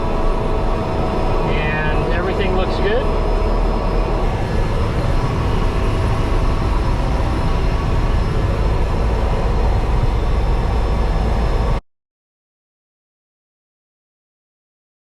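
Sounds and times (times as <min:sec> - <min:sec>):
turboprop engine idling: 0:00.0 - 0:11.8.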